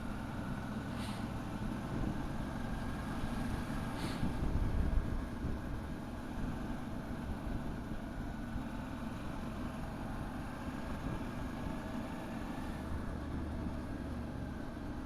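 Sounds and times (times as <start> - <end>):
wind rumble on microphone: 3.4 - 6.7.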